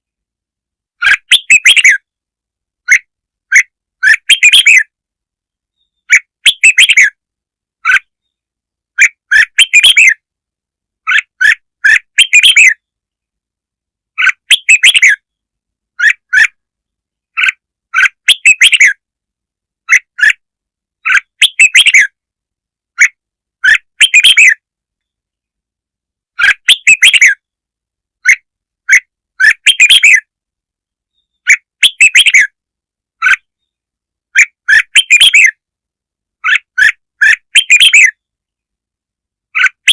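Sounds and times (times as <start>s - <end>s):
bulbul chattering song: 1.0s - 2.1s, 2.8s - 5.0s, 5.9s - 7.2s, 9.0s - 10.2s, 11.0s - 12.8s, 14.2s - 15.3s, 17.3s - 19.0s, 21.0s - 22.2s, 23.0s - 24.6s, 26.4s - 27.4s, 28.2s - 30.3s, 31.3s - 32.6s, 34.3s - 35.6s, 36.4s - 38.3s.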